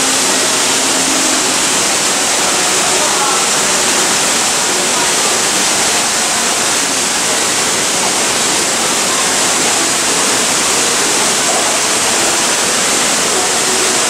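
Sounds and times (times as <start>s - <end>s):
waterfall splashing: 0.0s - 14.0s.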